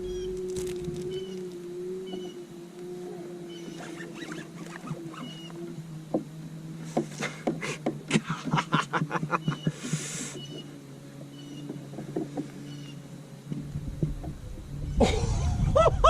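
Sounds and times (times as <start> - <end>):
steady low hum: 0.0 - 16.0
short hiss: 9.7 - 10.5.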